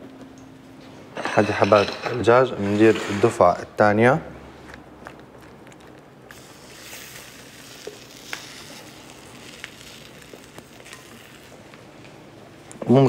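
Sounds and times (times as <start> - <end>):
chicken sizzling in frying pan: 6.4 - 11.6.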